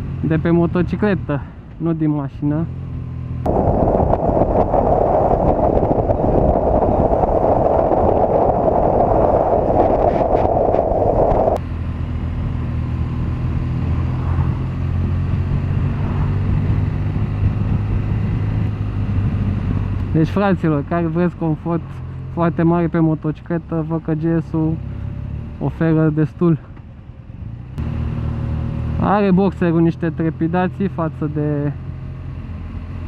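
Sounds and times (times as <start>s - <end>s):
motorcycle engine cruising: 0.0s - 22.9s, 26.6s - 33.0s
road noise: 0.0s - 33.0s
wind rushing on microphone: 3.5s - 11.6s, 13.4s - 21.1s.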